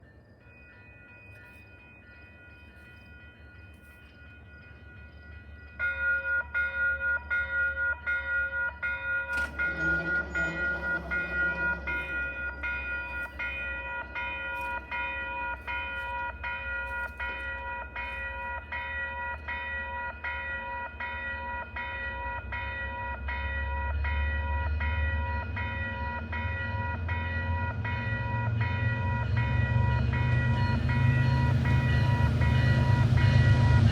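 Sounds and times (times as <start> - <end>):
railroad crossing bell ringing: 0.0 - 33.9
train rumble: 0.0 - 33.9.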